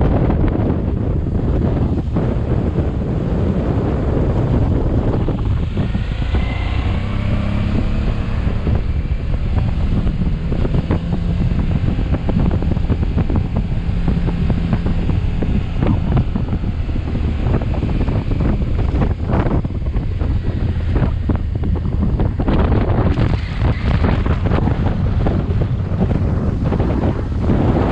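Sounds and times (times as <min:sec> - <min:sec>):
motorcycle engine running: 0:00.0 - 0:27.9
wind noise on microphone: 0:00.0 - 0:27.9.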